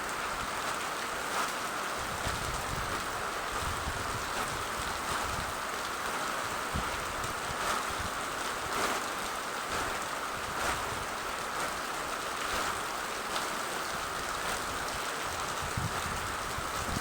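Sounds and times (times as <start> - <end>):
rain drop strikes: 0.0 - 17.0
steady rain hissing: 0.0 - 17.0.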